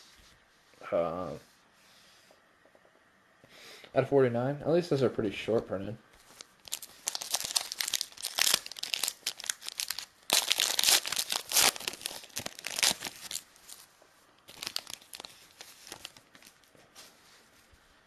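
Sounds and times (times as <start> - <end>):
foil wrapper tearing and crinkling: 6.4 - 13.9, 14.5 - 16.6.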